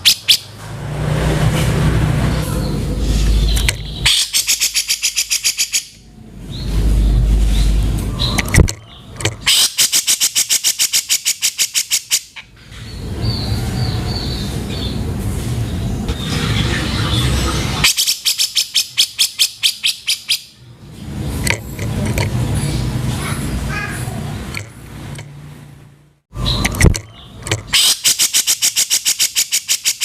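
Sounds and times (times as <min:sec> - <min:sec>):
lower bird chattering: 0:02.4 - 0:06.0
bird rattling call: 0:03.2 - 0:06.0, 0:06.7 - 0:12.4, 0:26.5 - 0:30.0.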